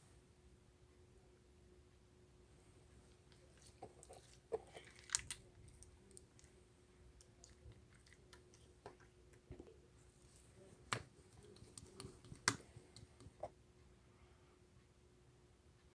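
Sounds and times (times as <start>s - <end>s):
faint steady hum: 0.0s - 15.9s
faint clicks and taps: 7.2s - 13.5s.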